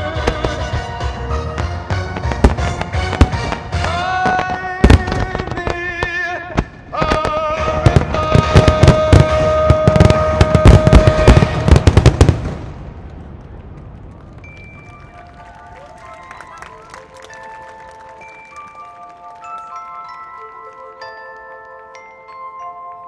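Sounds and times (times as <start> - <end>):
music with long held notes: 0.0 - 5.6
fireworks bursting: 0.0 - 15.1.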